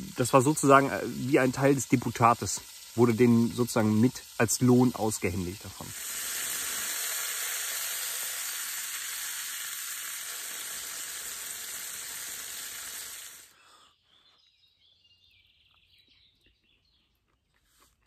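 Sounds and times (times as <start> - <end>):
liver frying in hot fat: 0.0 - 13.5.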